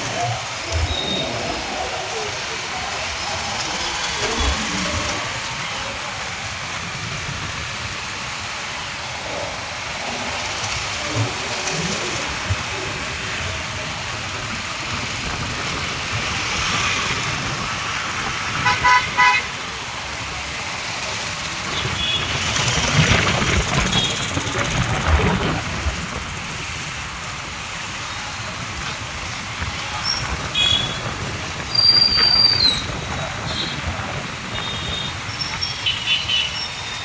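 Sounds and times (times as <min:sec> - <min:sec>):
road traffic noise: 0:00.0 - 0:37.0
vehicle horn tooting: 0:18.6 - 0:19.5, 0:30.5 - 0:31.1, 0:34.6 - 0:37.0.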